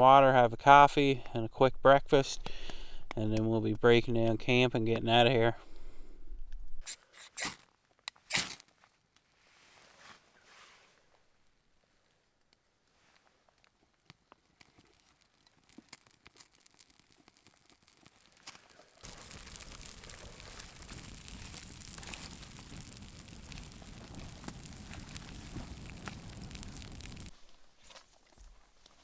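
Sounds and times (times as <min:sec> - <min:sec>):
crinkling rustle: 0:07.6 - 0:29.0
rain ticking on a tarp: 0:12.4 - 0:29.0.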